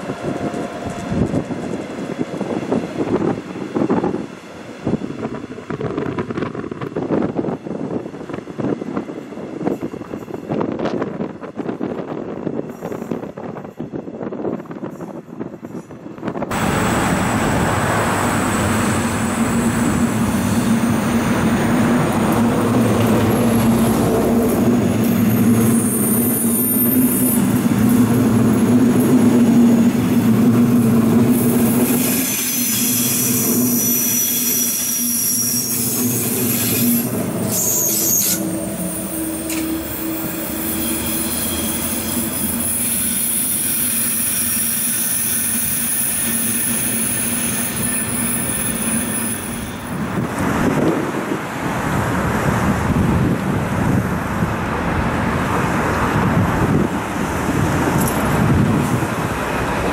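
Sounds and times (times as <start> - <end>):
passenger train passing: 0.0 - 59.9
road traffic: 16.5 - 59.9
train wheels squealing: 18.2 - 21.8, 23.2 - 50.1.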